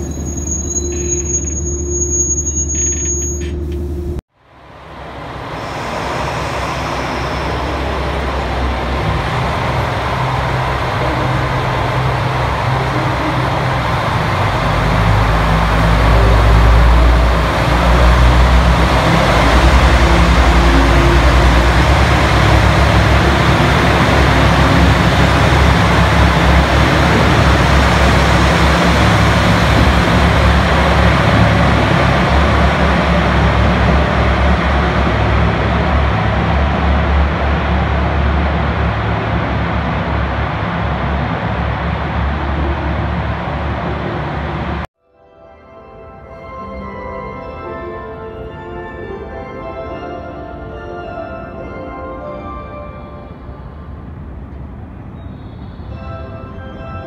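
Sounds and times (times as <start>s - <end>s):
train rumbling through station: 0.0s - 45.0s, 45.8s - 57.0s.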